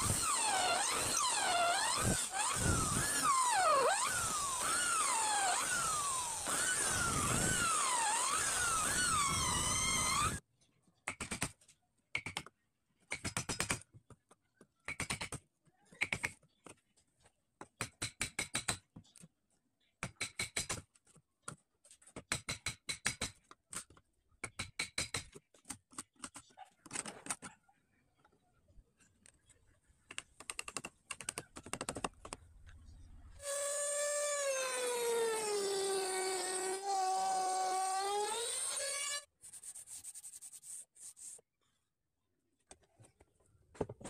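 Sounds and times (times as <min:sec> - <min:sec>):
electric router whine: 0:00.0 - 0:10.4.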